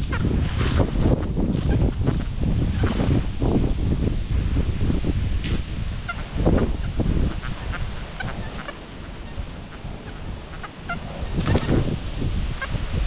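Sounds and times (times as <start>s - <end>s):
wind rumbling on microphone: 0.0s - 13.0s
geese honking: 6.0s - 13.0s.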